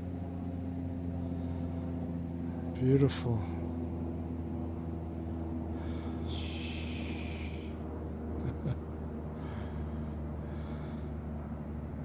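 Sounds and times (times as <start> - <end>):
steady low hum: 0.0 - 12.0
person breathing: 5.7 - 7.9, 9.3 - 11.4.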